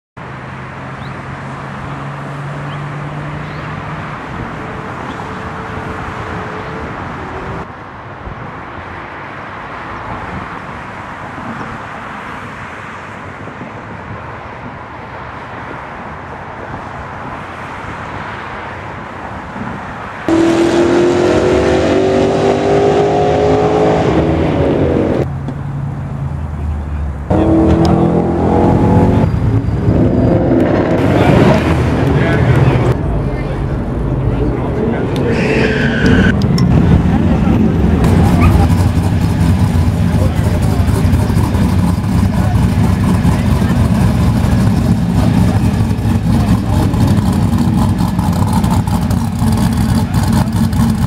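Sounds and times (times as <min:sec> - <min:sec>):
car engines running: 0:08.4 - 0:51.0
engine accelerating: 0:20.3 - 0:25.3, 0:27.3 - 0:51.0.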